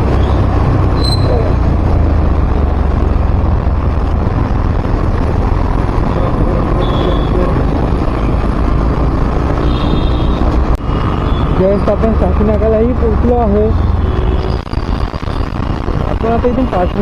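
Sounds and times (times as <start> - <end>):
vehicle road and wind noise: 0.0 - 17.0.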